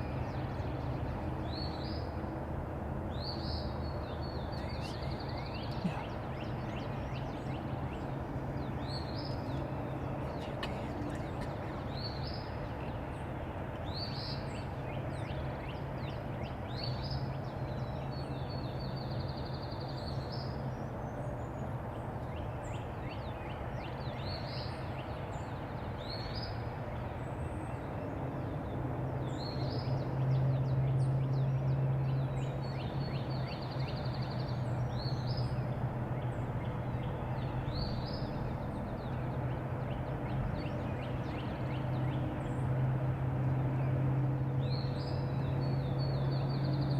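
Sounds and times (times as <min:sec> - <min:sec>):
outdoor background noise: 0:00.0 - 0:46.9
small songbird singing: 0:03.1 - 0:12.9.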